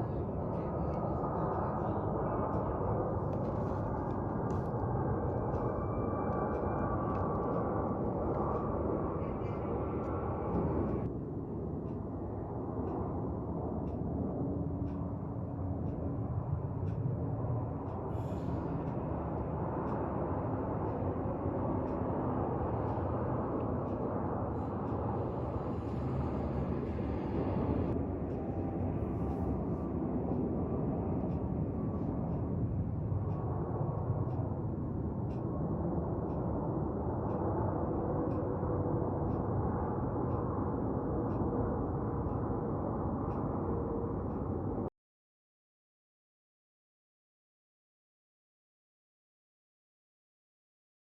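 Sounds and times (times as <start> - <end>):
faint whine: 0.0 - 44.9
jet engines rumbling: 14.4 - 44.8.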